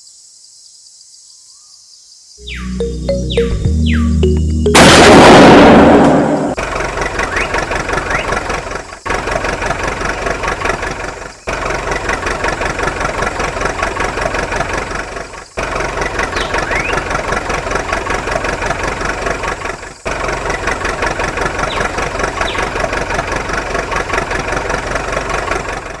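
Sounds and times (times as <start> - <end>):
engine idling with chugging: 6.6 - 26.0.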